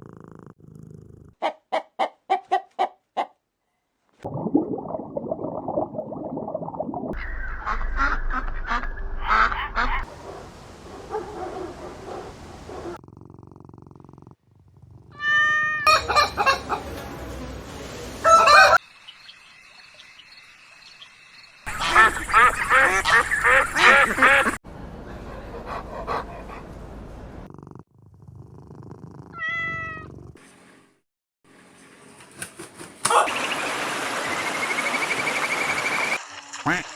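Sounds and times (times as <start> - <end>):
cat purring: 0.0 - 1.4, 12.8 - 15.2, 27.5 - 29.4, 30.0 - 30.4
waterfowl honking and quacking: 7.2 - 10.1, 15.9 - 16.9, 18.2 - 18.8, 21.7 - 24.5
cat meowing: 15.1 - 15.9, 29.3 - 30.1.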